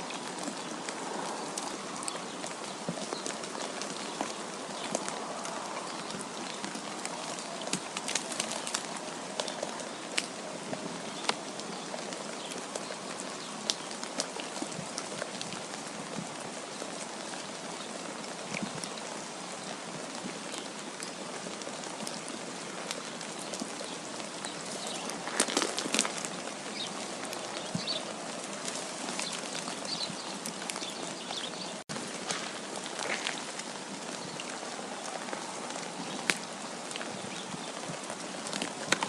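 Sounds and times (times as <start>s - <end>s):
wind and precipitation hiss: 0.0s - 39.0s.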